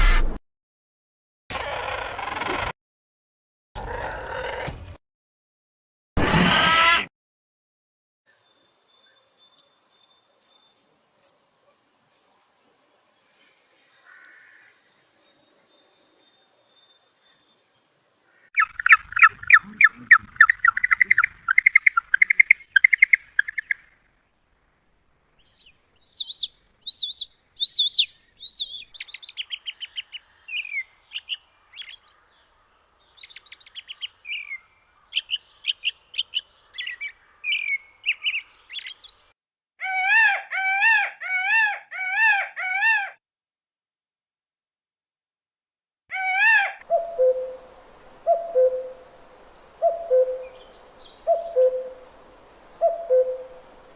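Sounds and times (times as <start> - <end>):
bird song phrases: 8.3 - 24.0, 25.3 - 42.8, 46.2 - 53.9
high thin bird chirps: 8.5 - 24.0, 25.4 - 32.1, 46.8 - 53.9
fast bird trill: 18.6 - 23.9, 25.4 - 29.6, 46.8 - 53.9.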